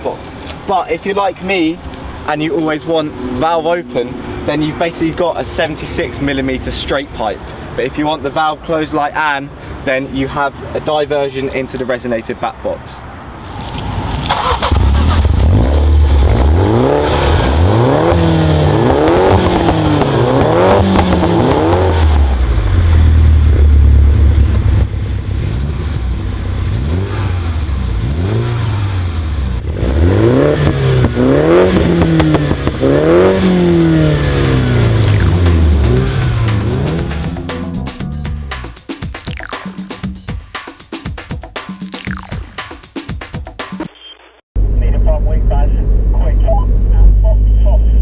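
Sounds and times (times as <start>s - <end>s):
car engine accelerating: 13.4s - 38.7s.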